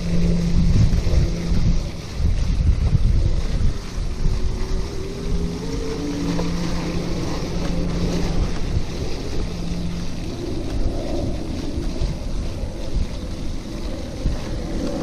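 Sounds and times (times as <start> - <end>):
faint rising tone: 0.0 - 2.1, 4.1 - 12.3
low steady hum: 0.0 - 15.0
wind buffeting microphone: 0.0 - 15.0.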